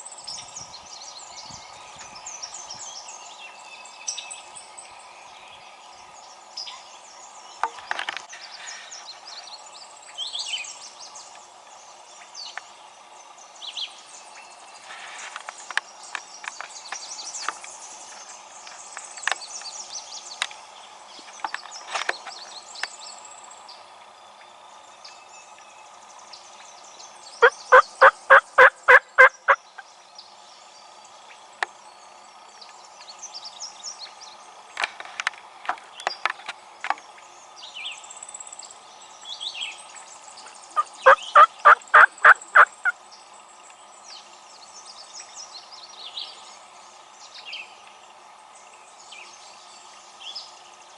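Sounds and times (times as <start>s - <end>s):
songbirds chirping: 0.0s - 50.9s
turkey yelps: 27.4s - 29.6s, 40.8s - 42.7s.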